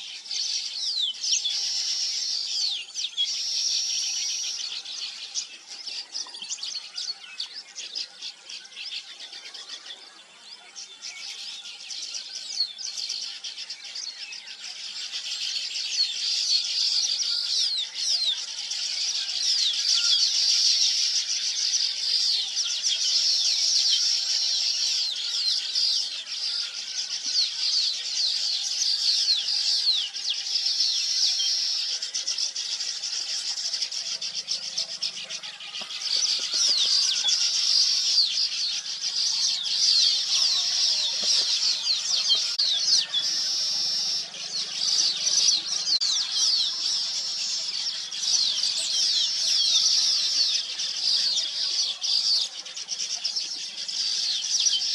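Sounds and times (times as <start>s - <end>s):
flock of small birds chirping: 0.0s - 54.9s.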